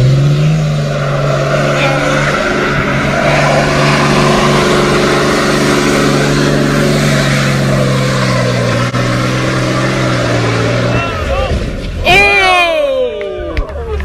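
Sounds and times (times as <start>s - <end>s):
car engine at high revs: 0.0s - 12.0s
spinning tyres hissing: 0.0s - 12.1s.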